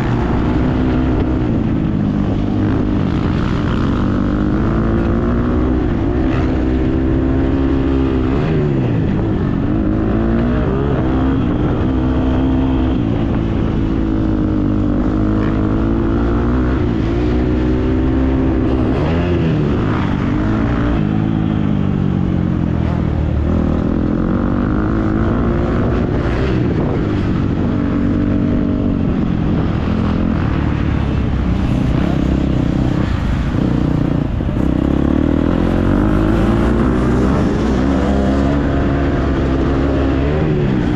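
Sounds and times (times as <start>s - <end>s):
dirt bike engine revving: 22.7s - 40.9s.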